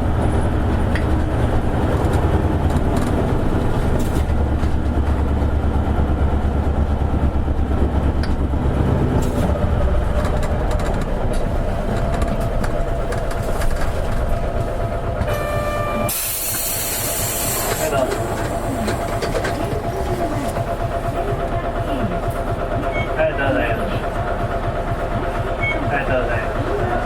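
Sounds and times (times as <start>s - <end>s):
bus diesel engine rumbling: 0.0s - 27.0s
compressed air hiss: 16.1s - 17.8s.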